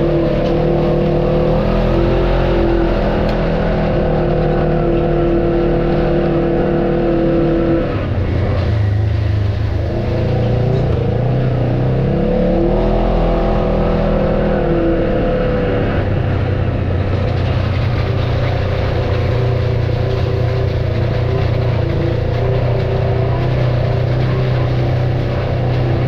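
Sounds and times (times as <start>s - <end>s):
off-road vehicle engine: 0.0s - 26.0s.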